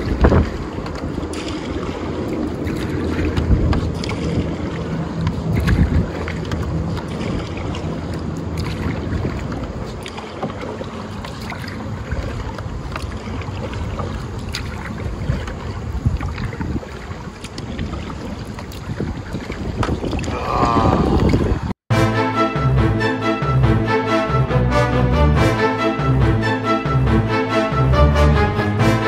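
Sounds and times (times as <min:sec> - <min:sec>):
wind rumbling on microphone: 0:00.0 - 0:21.8
water splashing against kayak hull: 0:00.0 - 0:29.0.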